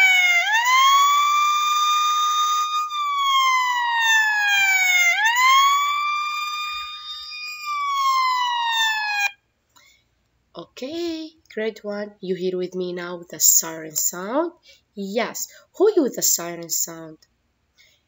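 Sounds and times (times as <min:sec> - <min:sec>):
emergency siren wailing: 0:00.0 - 0:09.4.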